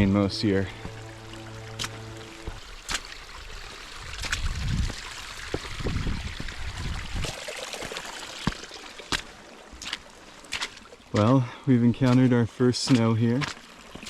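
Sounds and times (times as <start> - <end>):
low rumbling: 0.0 - 7.3
rain runoff trickling: 0.0 - 14.0.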